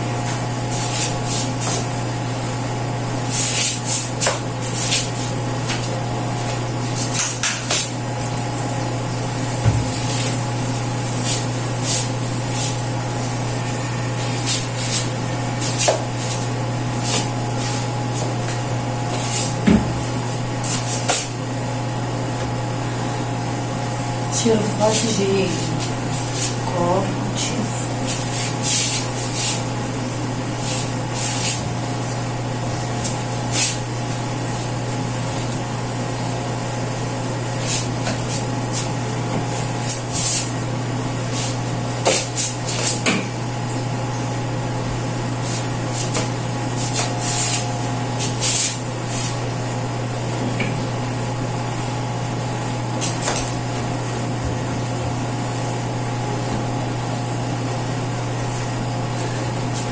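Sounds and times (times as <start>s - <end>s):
low electrical hum: 0.0s - 59.9s
scrubbing and wiping strokes: 0.3s - 1.9s, 9.2s - 21.3s, 24.8s - 26.6s, 27.9s - 30.0s, 30.6s - 32.2s, 45.3s - 49.6s.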